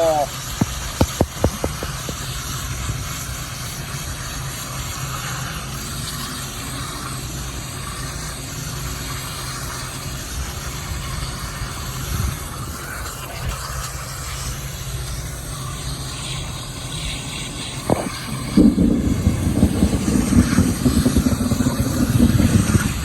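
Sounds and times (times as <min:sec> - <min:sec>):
heavy rain pouring: 0:17.8 - 0:23.0.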